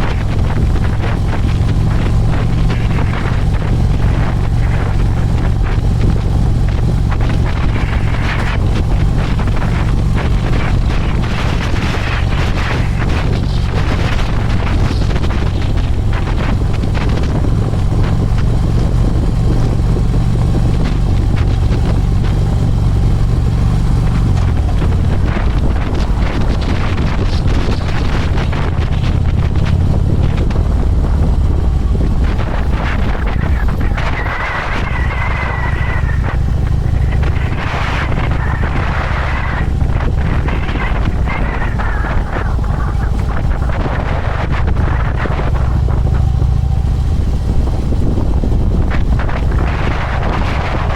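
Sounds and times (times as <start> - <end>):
motorcycle engine running: 0.0 - 50.9
wind buffeting microphone: 0.0 - 50.9.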